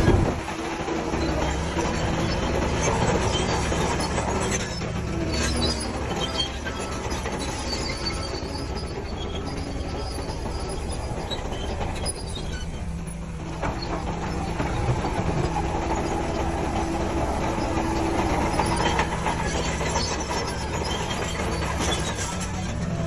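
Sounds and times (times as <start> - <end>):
diesel machinery rumbling: 0.0 - 23.0.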